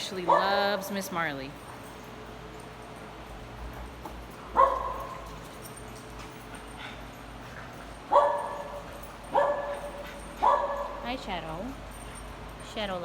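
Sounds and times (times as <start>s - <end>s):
small dog barking: 4.6s - 5.3s, 8.1s - 11.1s.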